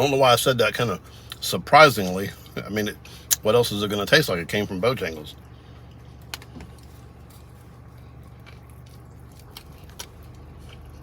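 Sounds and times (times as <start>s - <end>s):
low steady hum: 0.0s - 11.0s
food crunching while chewing: 5.8s - 11.0s.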